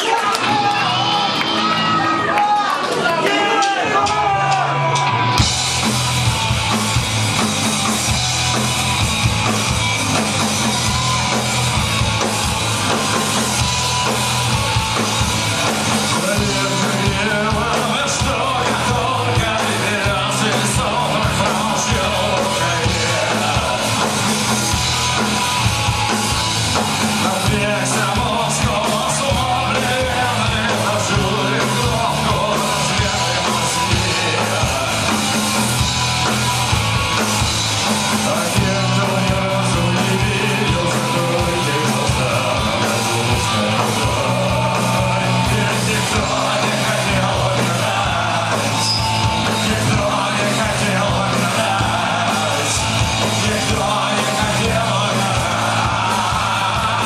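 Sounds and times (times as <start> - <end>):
shouted vocals: 0.0 - 5.4, 38.3 - 57.0
drum kit: 0.0 - 57.0
punk rock band playing: 0.0 - 57.0.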